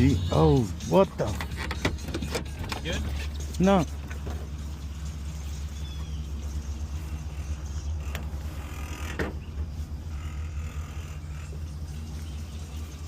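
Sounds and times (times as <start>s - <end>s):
tractor engine idling: 0.0s - 13.0s
sharp creaks: 7.9s - 9.4s.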